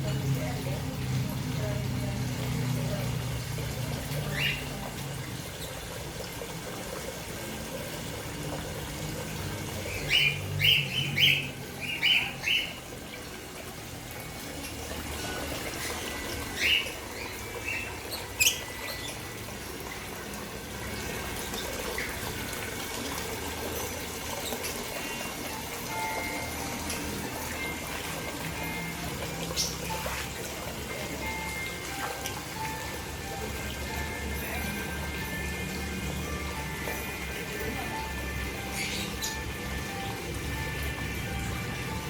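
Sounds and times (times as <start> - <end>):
running water: 0.0 - 42.0
birds giving sharp calls: 4.2 - 4.8, 9.9 - 12.8, 15.9 - 19.3.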